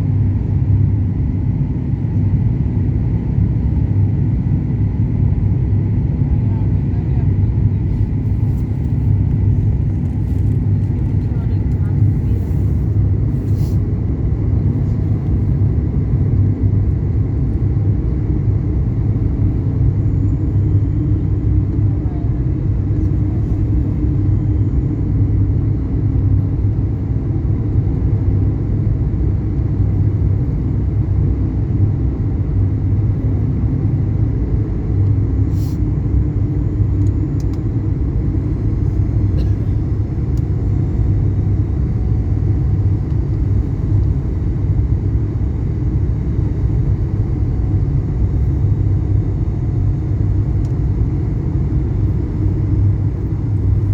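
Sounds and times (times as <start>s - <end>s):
airliner cabin engine rumble: 0.0s - 53.9s
faint steady hum: 17.5s - 53.9s.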